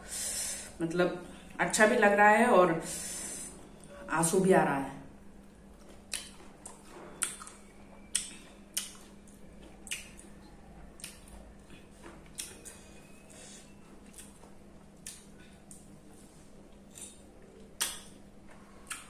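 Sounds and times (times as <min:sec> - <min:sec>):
wet mouth chewing: 0:05.7 - 0:12.9, 0:14.0 - 0:15.9, 0:16.8 - 0:18.2, 0:18.8 - 0:19.0
lip and tongue smacks: 0:05.8 - 0:09.1, 0:09.8 - 0:10.3, 0:17.8 - 0:18.2.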